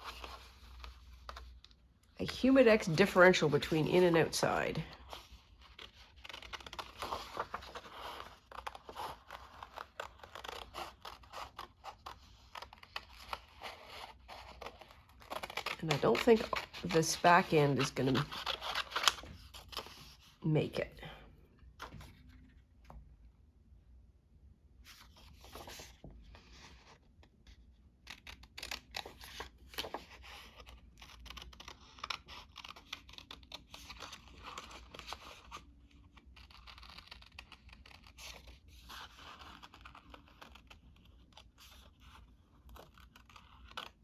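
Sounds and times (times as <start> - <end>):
paper tearing and crinkling: 3.9 - 20.0.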